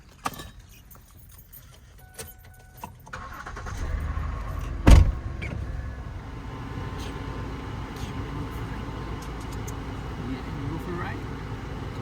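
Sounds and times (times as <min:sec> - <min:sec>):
vehicle engine rumbling: 0:01.1 - 0:12.0
loud sharp thump: 0:04.7 - 0:05.8.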